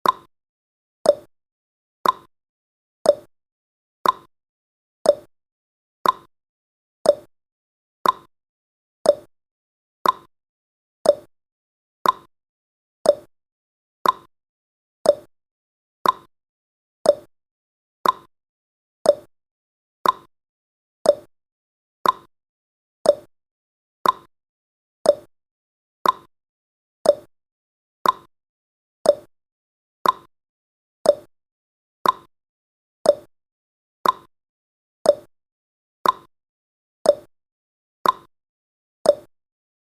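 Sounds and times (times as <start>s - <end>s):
countdown timer ticking: 7.1s - 7.3s, 9.1s - 9.3s, 11.1s - 11.3s, 13.1s - 13.3s, 15.1s - 15.3s, 17.1s - 17.3s, 19.1s - 19.3s, 21.1s - 21.3s, 23.1s - 23.3s, 24.0s - 24.3s, 25.1s - 25.3s, 26.0s - 26.3s, 27.0s - 27.3s, 28.0s - 28.3s, 29.1s - 29.3s, 30.0s - 30.3s, 31.1s - 31.3s, 32.0s - 32.3s, 33.1s - 33.3s, 34.0s - 34.3s, 35.1s - 35.3s, 36.0s - 36.3s, 37.1s - 37.3s, 38.0s - 38.3s, 39.1s - 39.3s.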